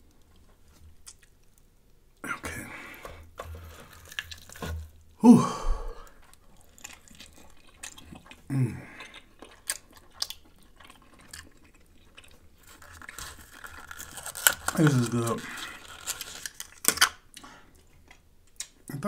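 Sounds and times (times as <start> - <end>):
chewing and lip-smacking: 0.2 - 1.6, 6.2 - 14.6
short falling vocal hums: 5.2 - 6.0.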